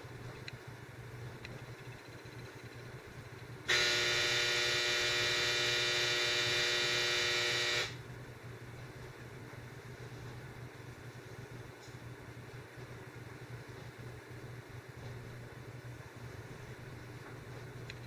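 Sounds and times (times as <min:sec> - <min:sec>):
faint low hum: 0:00.0 - 0:18.0
loud steady buzzing tone: 0:01.6 - 0:08.3.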